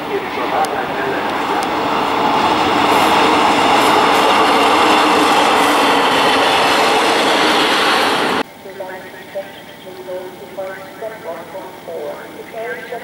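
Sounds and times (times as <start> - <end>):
clickety-clack of wheels on rail: 0.0 - 8.4
train rumble: 0.0 - 13.0.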